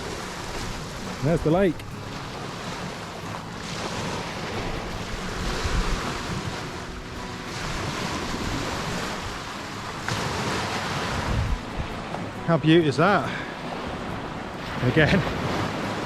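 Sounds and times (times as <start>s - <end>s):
wind gusting on microphone: 3.8s - 16.0s.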